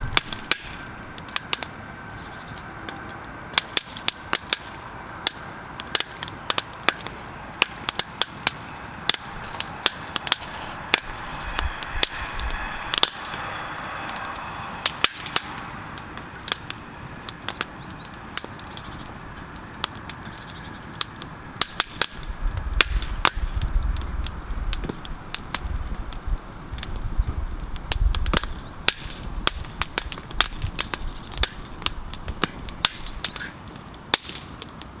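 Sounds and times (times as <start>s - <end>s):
campfire crackling and popping: 0.0s - 35.0s
low rumble: 8.5s - 20.2s.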